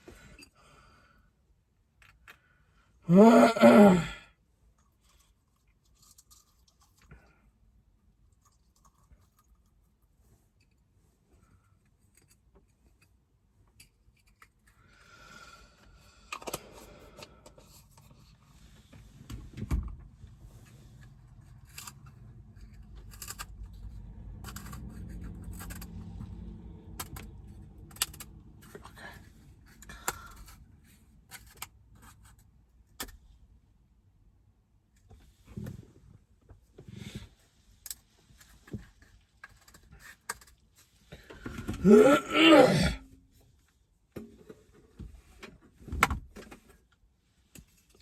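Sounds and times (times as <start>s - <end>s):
small objects clicking and scraping: 4.8s - 7.3s, 8.3s - 10.0s, 11.4s - 14.8s, 21.0s - 29.0s, 37.8s - 41.0s.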